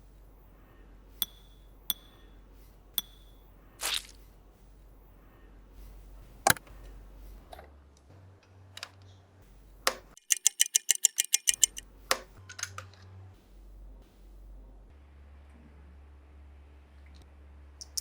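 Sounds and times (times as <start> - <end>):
plastic toy parts clicking: 9.9 - 12.9
rapid ticks: 10.2 - 11.8.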